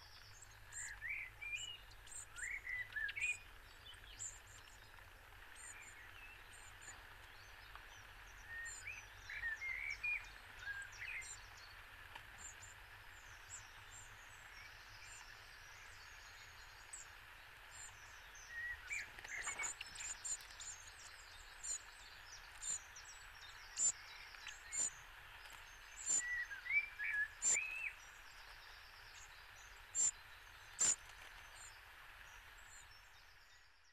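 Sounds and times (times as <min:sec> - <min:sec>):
birds chirping and singing: 0:05.6 - 0:11.8, 0:17.7 - 0:31.8.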